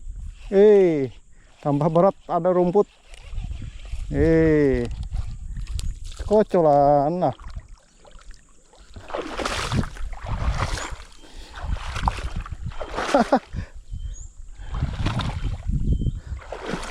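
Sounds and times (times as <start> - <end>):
water splashing and sloshing: 5.1 - 13.6, 14.6 - 16.9.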